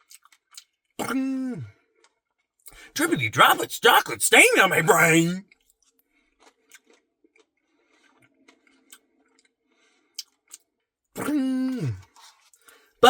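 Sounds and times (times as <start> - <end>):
chewing crackles: 5.6 - 10.7, 11.7 - 12.9
wet mouth clicks: 10.2 - 10.6, 11.2 - 12.4.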